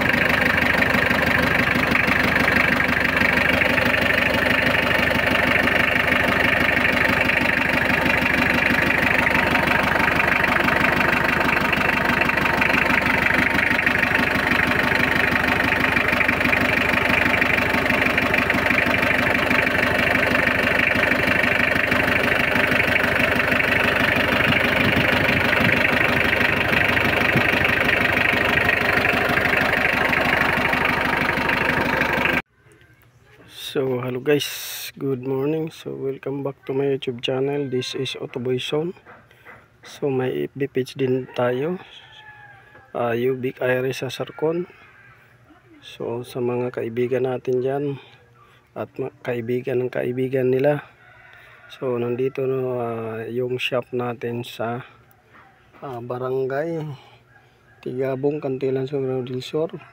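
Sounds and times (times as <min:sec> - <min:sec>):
diesel engine idling: 0:00.0 - 0:32.5.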